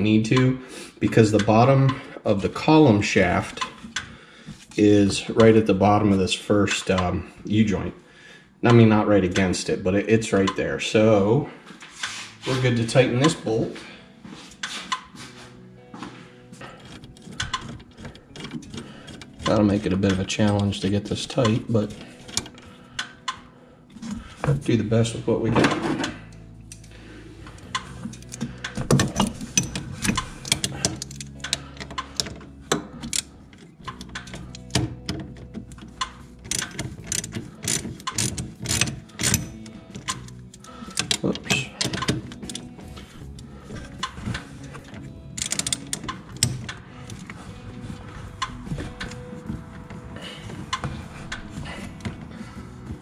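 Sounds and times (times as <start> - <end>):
background music: 0.0 - 53.0
hand ratchet clicking: 16.6 - 24.6, 26.0 - 53.0.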